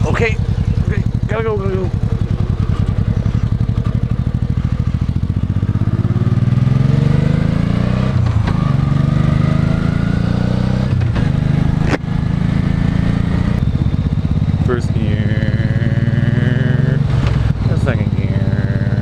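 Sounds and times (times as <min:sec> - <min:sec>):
motorcycle engine accelerating: 0:00.0 - 0:19.0
sharp click: 0:11.8 - 0:12.0.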